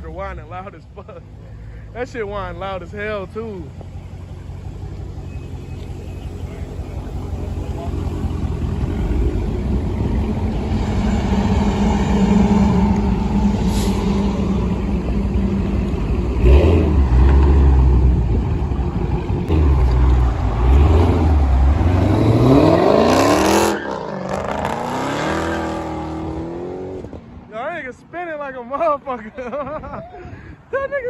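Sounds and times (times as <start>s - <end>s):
car engine revving: 1.1s - 27.3s
supercharger whine: 3.4s - 27.2s.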